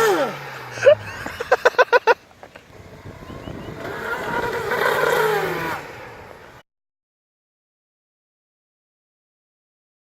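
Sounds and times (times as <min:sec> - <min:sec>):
car engine revving: 0:00.0 - 0:06.6.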